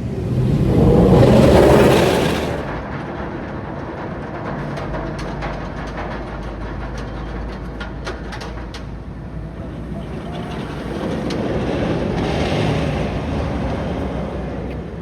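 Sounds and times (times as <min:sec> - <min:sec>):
steady low rumble: 0:00.0 - 0:03.6
roller coaster rushing past: 0:00.0 - 0:05.2, 0:09.5 - 0:15.0.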